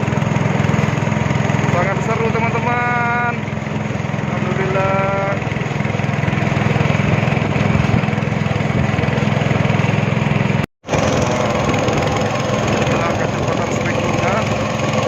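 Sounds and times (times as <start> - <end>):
rushing water: 0.0 - 15.0
speedboat engine drone: 0.0 - 15.0
wind noise: 6.2 - 9.2.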